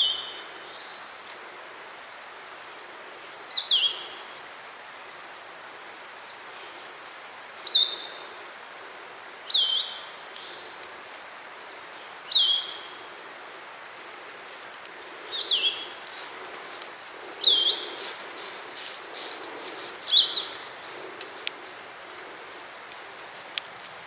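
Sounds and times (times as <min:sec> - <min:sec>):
bird calling: 0:00.0 - 0:01.1, 0:02.8 - 0:04.4, 0:07.6 - 0:11.0, 0:11.6 - 0:23.6
outdoor hiss: 0:00.0 - 0:24.0.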